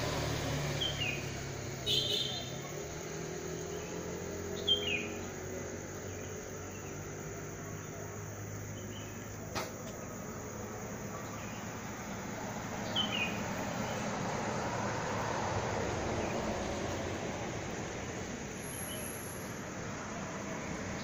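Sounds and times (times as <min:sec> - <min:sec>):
bird chirping: 0:00.7 - 0:01.3, 0:03.4 - 0:14.2, 0:18.6 - 0:19.6
sharp click: 0:09.5 - 0:10.0.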